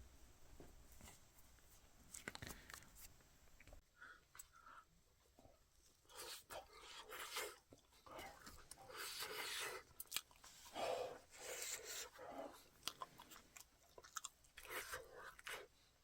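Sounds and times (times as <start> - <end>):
person chewing: 6.1 - 10.8, 11.4 - 15.7.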